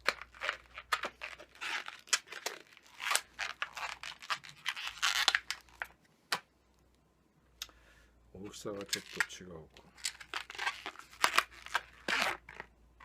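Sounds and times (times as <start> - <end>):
balloon rubber rubbing and crinkling: 0.0 - 6.0, 8.7 - 13.0.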